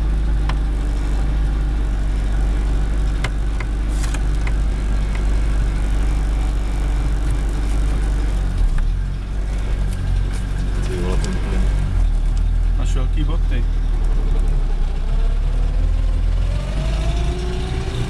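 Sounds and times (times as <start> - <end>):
car engine rumbling: 0.0 - 18.0.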